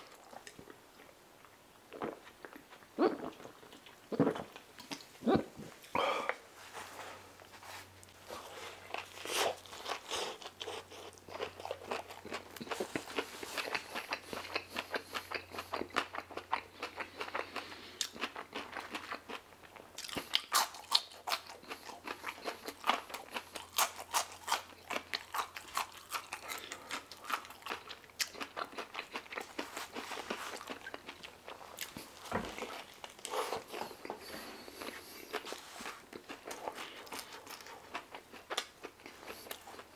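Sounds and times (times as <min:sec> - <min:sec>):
chewing and lip-smacking: 0:00.1 - 0:05.1, 0:08.8 - 0:39.9.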